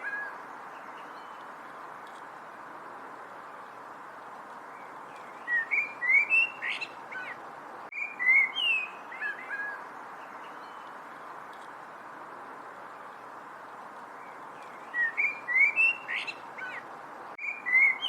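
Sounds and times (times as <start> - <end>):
steady background hiss: 0.0 - 18.0
songbird singing chirpy whistles: 4.8 - 10.9, 14.2 - 16.8, 17.4 - 18.0.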